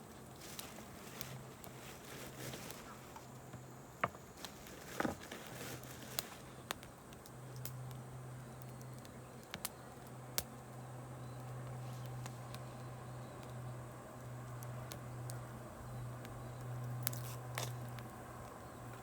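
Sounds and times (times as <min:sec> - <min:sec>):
campfire crackling and popping: 0:00.0 - 0:19.0
faint low hum: 0:00.0 - 0:19.0.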